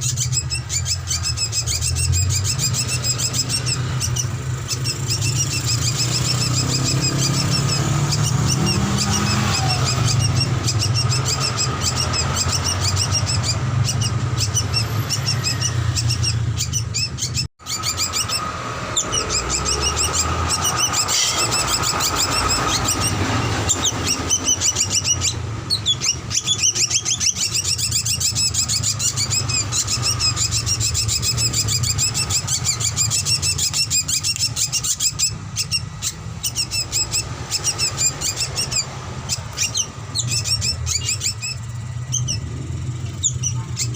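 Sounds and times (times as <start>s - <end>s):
bird chirping and twittering: 0.0s - 43.9s.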